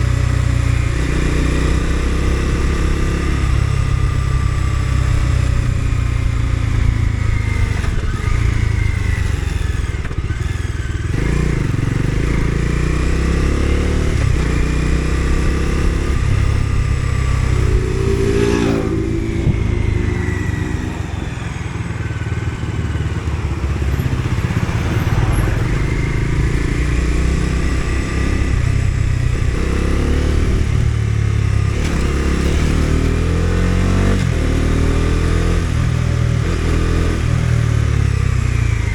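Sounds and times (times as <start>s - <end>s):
motorcycle engine and exhaust: 0.0s - 38.9s.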